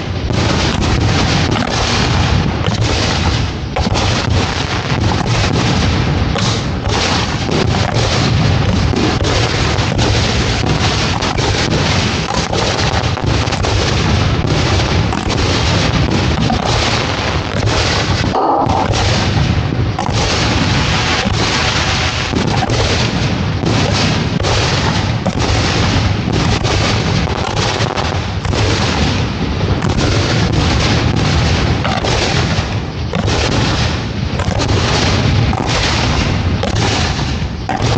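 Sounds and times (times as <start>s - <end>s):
fireworks launching and bursting: 0.0s - 37.9s.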